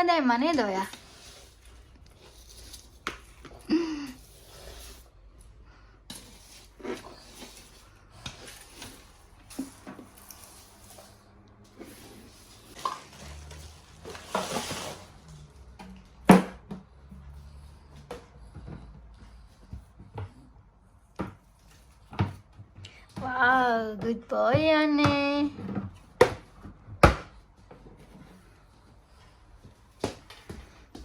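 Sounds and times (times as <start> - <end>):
rustling scrape: 0.6 - 5.3, 6.0 - 15.7.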